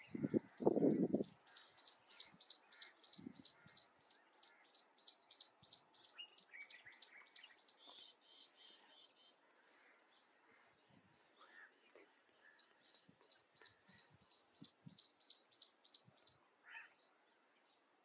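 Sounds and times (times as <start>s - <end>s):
small bird chirping: 0.0s - 9.4s, 12.4s - 17.1s.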